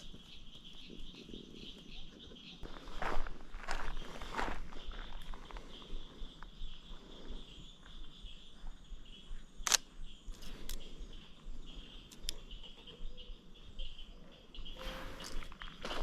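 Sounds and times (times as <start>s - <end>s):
camera shutter click: 9.6s - 9.9s.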